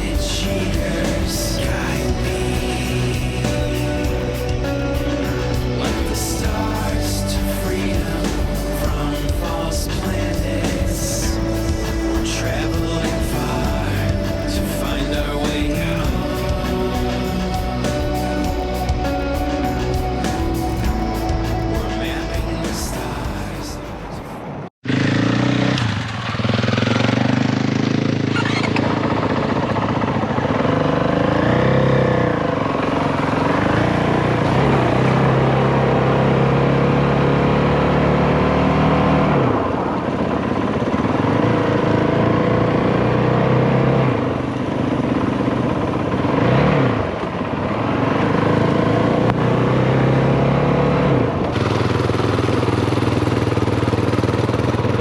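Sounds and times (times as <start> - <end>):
motorcycle engine running: 0.0 - 23.9, 24.8 - 55.0
music: 0.0 - 24.4.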